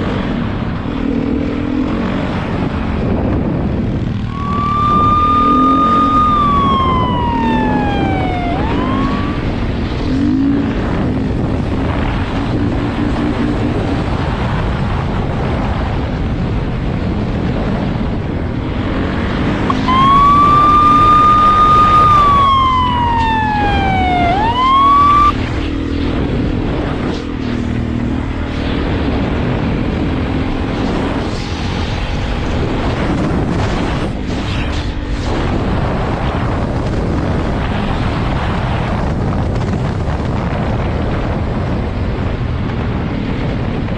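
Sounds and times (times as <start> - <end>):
vehicle engine and road noise: 0.0 - 43.9
police siren wailing: 4.3 - 9.9, 19.7 - 25.4.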